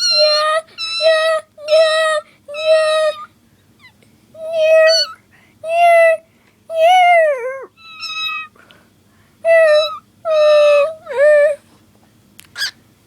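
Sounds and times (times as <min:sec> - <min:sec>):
cockatiel meowing calls: 0:07.8 - 0:08.5, 0:12.6 - 0:12.8.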